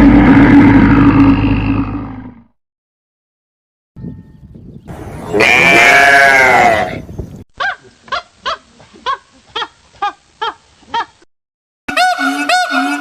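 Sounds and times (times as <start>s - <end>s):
large animal roaring: 0.0s - 2.5s
goat bleating: 5.4s - 6.9s.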